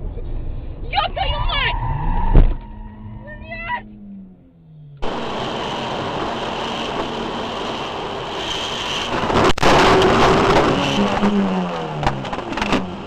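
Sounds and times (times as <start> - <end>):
car road and engine noise: 0.0 - 13.0
wavering tone: 1.3 - 5.8.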